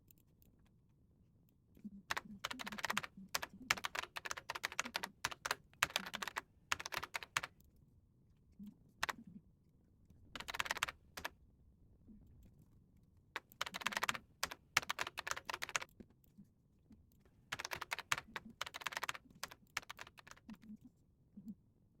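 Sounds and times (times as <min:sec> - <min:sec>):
typing on computer keyboard: 0:02.1 - 0:07.6, 0:10.3 - 0:11.3, 0:13.4 - 0:15.9, 0:17.5 - 0:20.7.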